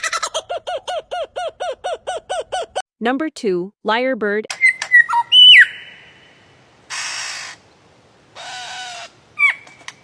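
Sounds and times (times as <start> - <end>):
bird harsh rasping calls: 6.9 - 7.7, 8.4 - 9.8.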